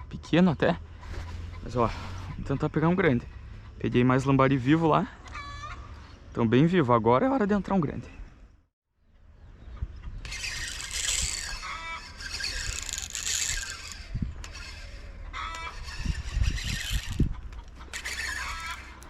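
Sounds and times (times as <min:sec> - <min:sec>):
birds chattering: 0:00.0 - 0:06.5, 0:14.4 - 0:19.0.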